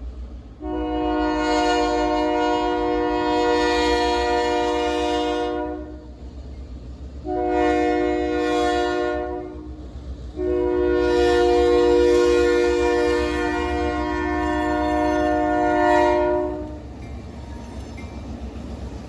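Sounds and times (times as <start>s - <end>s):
low rumble of passing train: 0.0s - 19.0s
locomotive air horn blasts: 0.6s - 6.0s, 7.2s - 9.8s, 10.4s - 16.9s.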